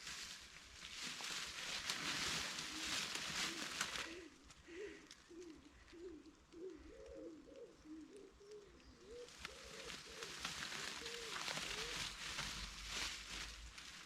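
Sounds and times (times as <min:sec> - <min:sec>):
rustling crackling noise: 0:00.0 - 0:05.9, 0:07.6 - 0:14.0
pigeon cooing: 0:02.0 - 0:12.6.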